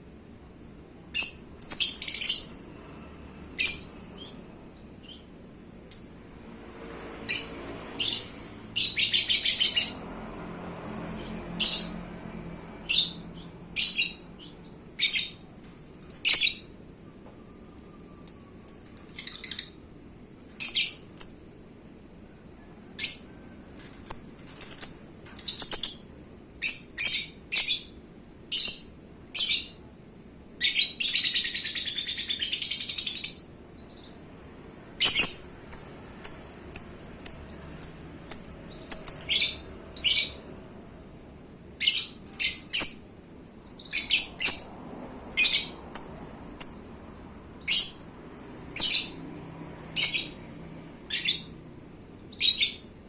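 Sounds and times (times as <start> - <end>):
lovebird chirping and trilling: 1.1 - 2.6, 3.6 - 5.3, 5.9 - 6.2, 7.3 - 10.0, 11.2 - 12.0, 12.8 - 16.7, 18.2 - 19.8, 20.6 - 21.5, 23.0 - 23.4, 24.1 - 29.8, 30.6 - 34.2, 35.0 - 40.5, 41.8 - 46.9, 47.6 - 48.1, 48.8 - 49.2, 49.9 - 50.4, 51.1 - 51.6, 52.2 - 52.9.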